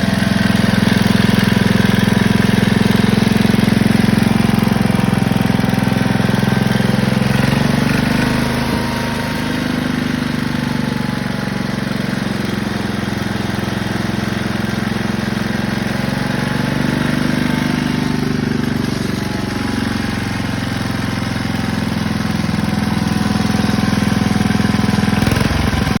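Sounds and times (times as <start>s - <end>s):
garden tractor engine running: 0.0s - 26.0s.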